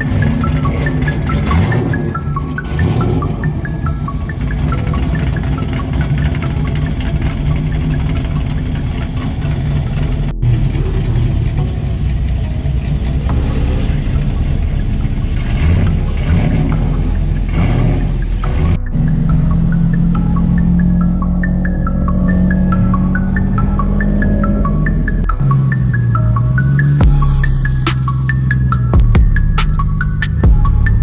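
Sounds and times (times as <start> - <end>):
car engine revving: 0.0 - 29.1.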